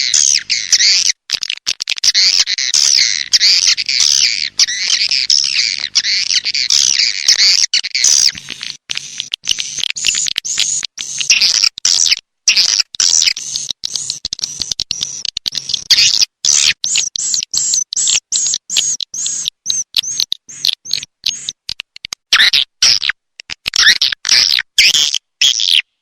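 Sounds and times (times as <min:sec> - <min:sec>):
swiftlet chirps: 0:02.8 - 0:11.4.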